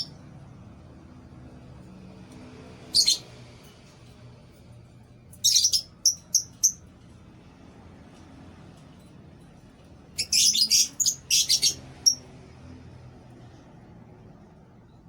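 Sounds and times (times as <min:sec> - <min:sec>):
lovebirds chirping: 0:05.4 - 0:06.8, 0:10.2 - 0:12.2.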